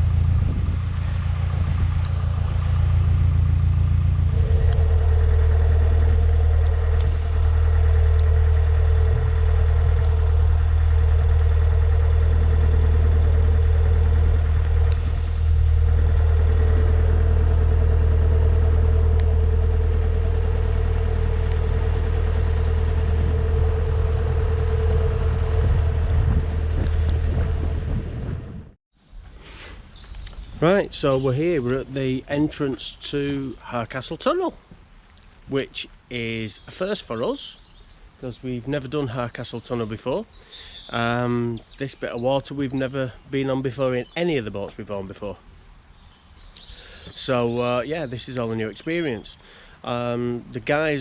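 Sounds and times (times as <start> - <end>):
steady higher hum: 0.0 - 28.8
diesel engine droning: 0.0 - 51.0.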